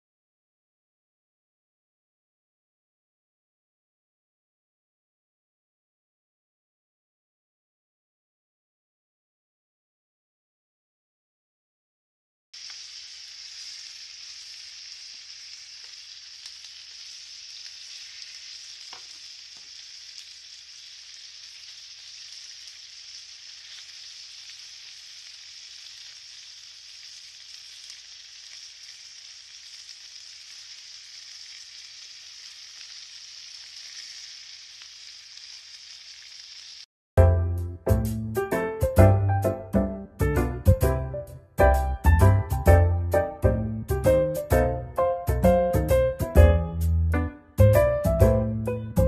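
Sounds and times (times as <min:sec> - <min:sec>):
chicken sizzling in grill pan: 0:12.6 - 0:36.9.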